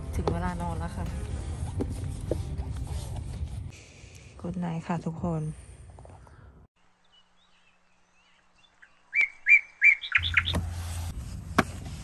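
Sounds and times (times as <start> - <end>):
songbird chirping: 6.8 - 10.8.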